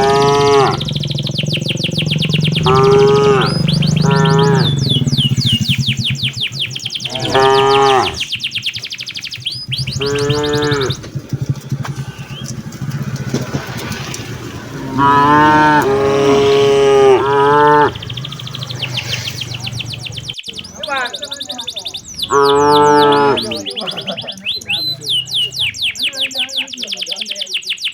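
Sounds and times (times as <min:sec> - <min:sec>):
cattle mooing: 0:00.0 - 0:05.4, 0:07.0 - 0:08.3, 0:09.8 - 0:20.2, 0:22.2 - 0:25.6.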